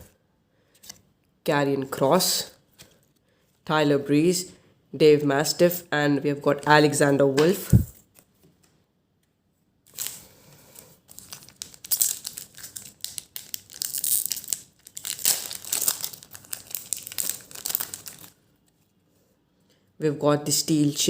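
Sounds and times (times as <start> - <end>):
wrapper tearing and crinkling: 9.9 - 10.3, 11.1 - 18.4.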